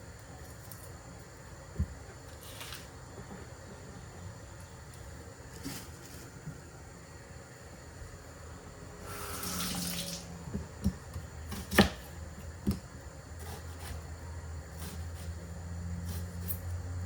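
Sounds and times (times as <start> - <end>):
kitchen tap running: 9.0 - 10.3.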